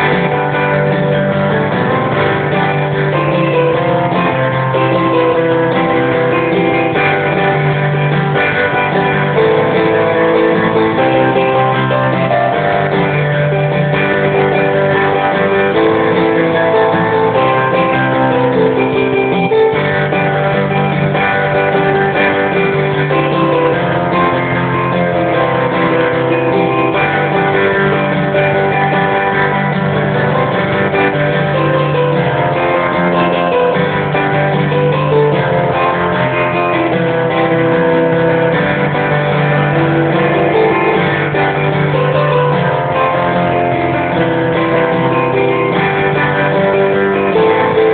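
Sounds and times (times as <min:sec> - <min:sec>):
guitar rock riff: 0:00.0 - 0:47.9.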